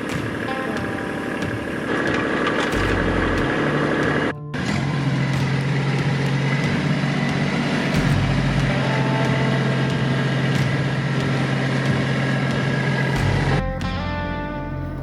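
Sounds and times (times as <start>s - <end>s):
tractor engine humming: 0.0s - 15.0s.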